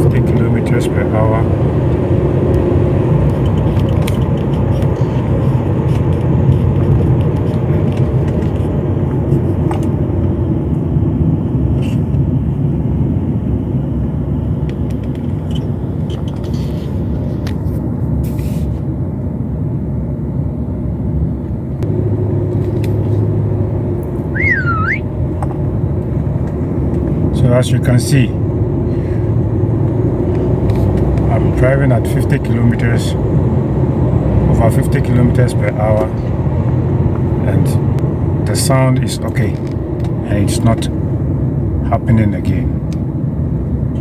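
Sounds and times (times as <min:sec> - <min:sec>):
engine and tyre rumble in car: 0:00.0 - 0:44.0
deep hum: 0:23.3 - 0:25.2.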